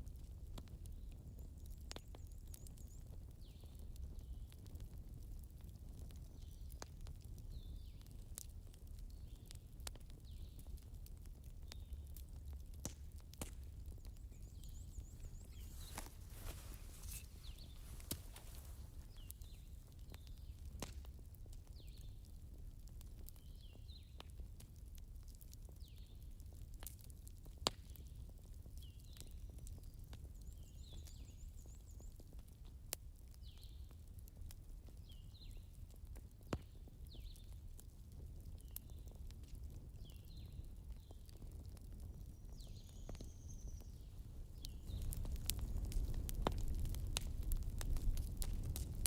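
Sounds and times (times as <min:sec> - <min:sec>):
campfire crackling: 0:00.0 - 0:49.0
sharp pops: 0:15.1 - 0:19.1.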